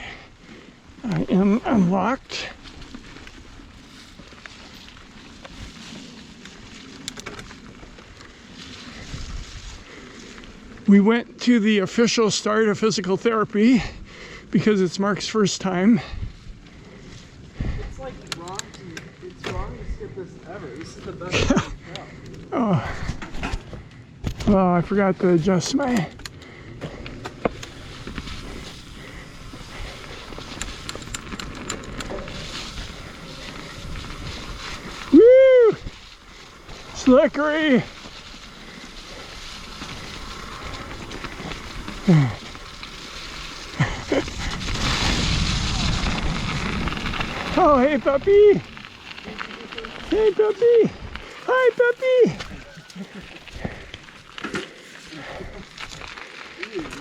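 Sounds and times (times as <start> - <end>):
bike tyres rolling on dirt: 0.0 - 57.0
sharp clicks or rattles: 30.4 - 32.2.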